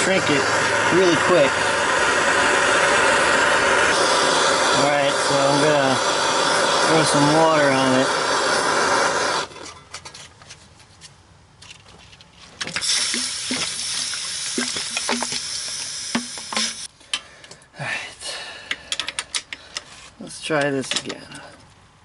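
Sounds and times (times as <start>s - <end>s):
water sizzling on hot metal: 0.0s - 9.5s, 12.8s - 16.9s.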